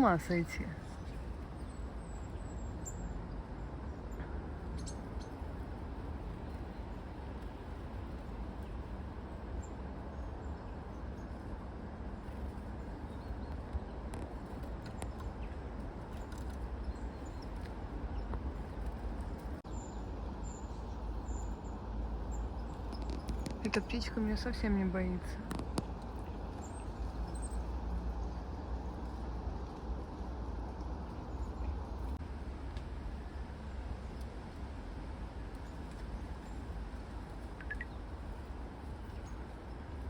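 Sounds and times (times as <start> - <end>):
low outdoor rumble: 0.0 - 40.0
tits calling: 37.5 - 38.1.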